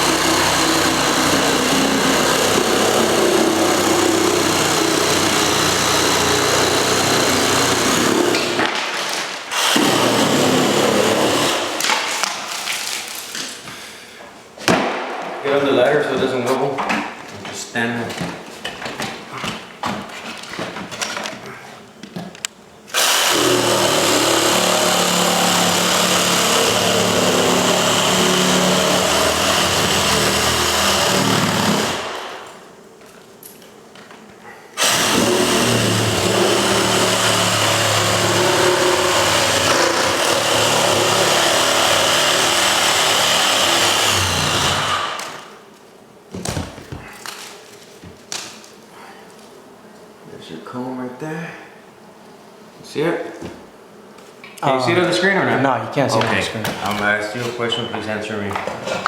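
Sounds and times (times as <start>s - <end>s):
electric power tool motor: 0.0s - 8.7s, 9.5s - 11.9s, 22.9s - 32.5s, 34.8s - 45.5s.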